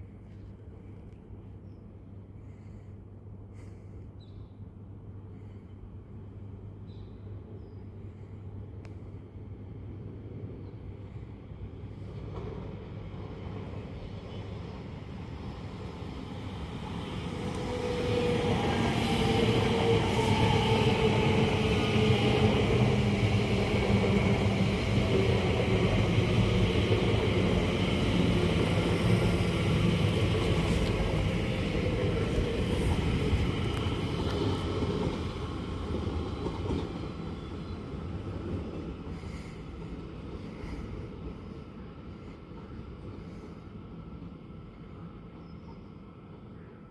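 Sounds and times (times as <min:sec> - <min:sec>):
train passing: 0:04.8 - 0:46.9.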